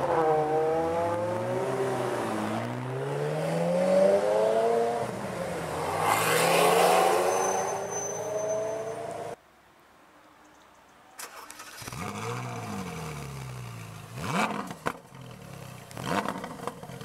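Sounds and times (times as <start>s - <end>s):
sports car engine accelerating: 0.0s - 9.4s.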